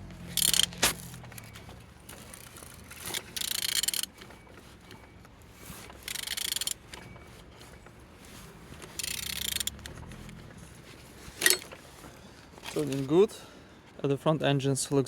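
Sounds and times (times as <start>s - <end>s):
wrench rasping on engine crankshaft: 0.3s - 1.4s, 2.2s - 4.2s, 6.0s - 6.9s, 8.9s - 10.3s.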